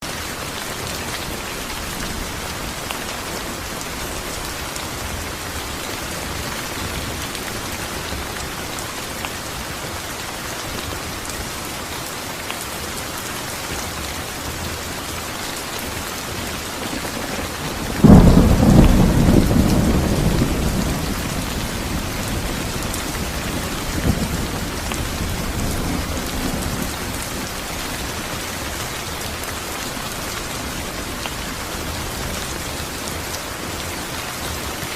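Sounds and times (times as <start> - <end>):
heavy rain falling: 0.0 - 34.9
faint rumble of thunder: 16.7 - 28.4
loud thunderclap: 16.8 - 27.5.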